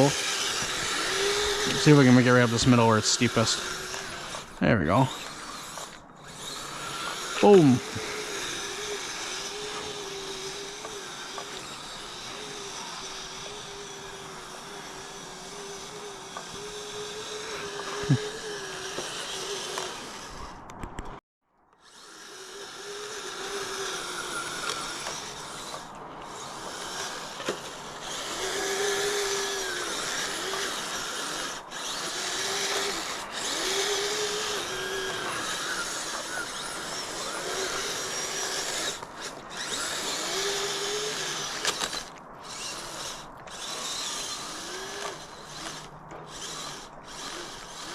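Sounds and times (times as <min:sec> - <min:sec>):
electric motor whine: 0:00.0 - 0:21.2, 0:21.8 - 0:47.9.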